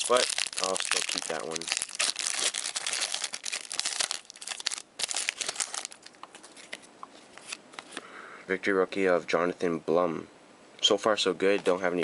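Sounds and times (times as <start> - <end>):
wrapper crinkling and tearing: 0.0 - 7.6.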